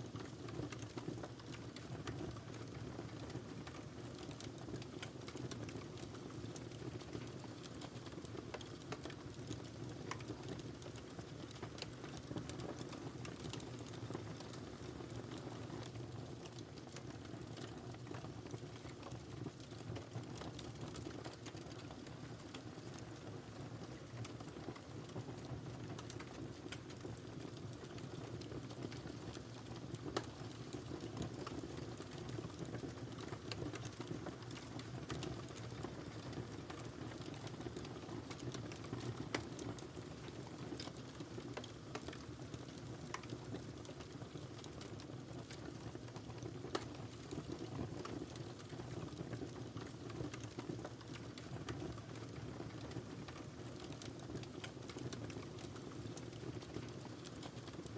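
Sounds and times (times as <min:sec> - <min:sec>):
wood fire crackling and popping: 0:00.0 - 0:57.9.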